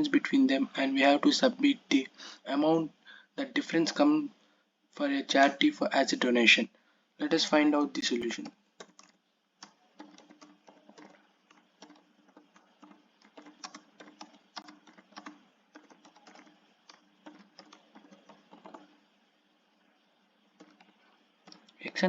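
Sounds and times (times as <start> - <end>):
typing on computer keyboard: 8.2 - 19.1, 20.5 - 21.8.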